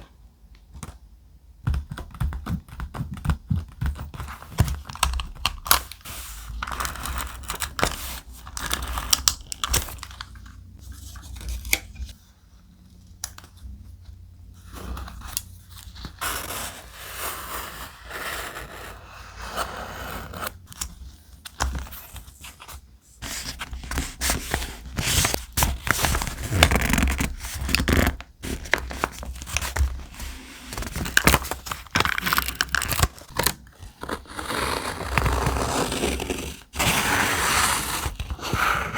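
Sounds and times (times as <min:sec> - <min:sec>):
thick paper crackling and tearing: 0:23.3 - 0:38.9.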